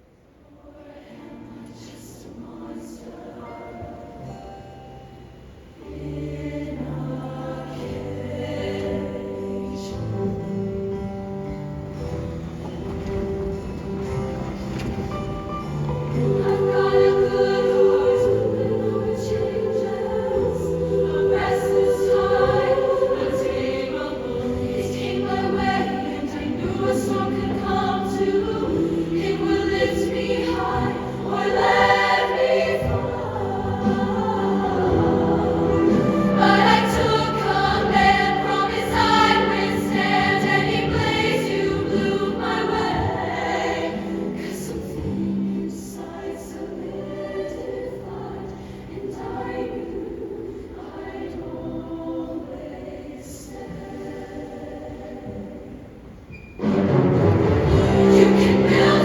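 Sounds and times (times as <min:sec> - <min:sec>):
choir singing in harmony: 0:00.0 - 0:59.0
band accompaniment: 0:56.6 - 0:59.0.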